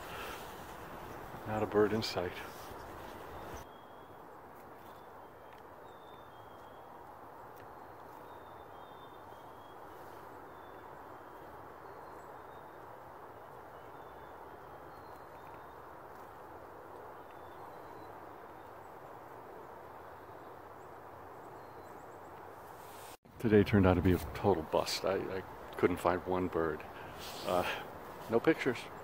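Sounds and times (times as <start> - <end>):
distant high bird calls: 0.0 - 16.2, 25.4 - 29.0.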